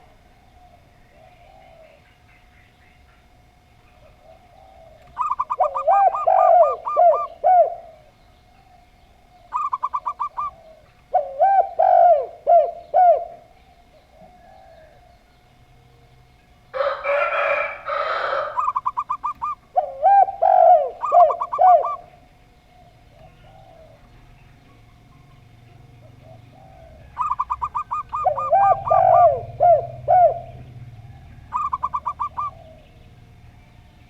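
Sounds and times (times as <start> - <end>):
doves cooing: 0.0 - 34.0
rooster crowing: 14.1 - 15.4, 16.7 - 19.0, 26.3 - 32.8.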